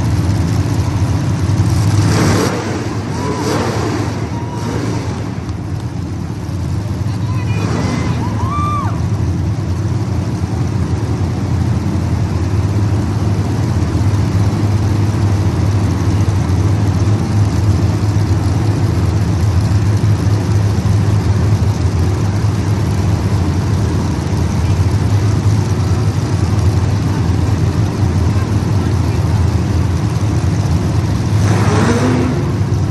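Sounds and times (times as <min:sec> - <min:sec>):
race car engines droning: 0:00.0 - 0:32.9.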